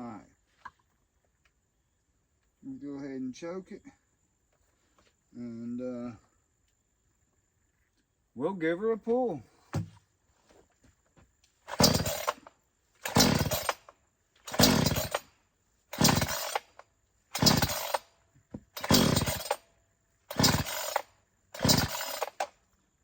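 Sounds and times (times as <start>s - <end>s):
chainsaw recoil starter whirring: 11.7s - 15.3s, 15.9s - 18.1s, 18.7s - 19.6s, 20.3s - 22.6s.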